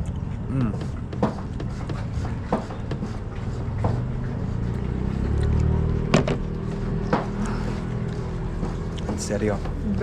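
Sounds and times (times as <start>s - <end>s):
truck engine and road drone: 2.2s - 10.0s.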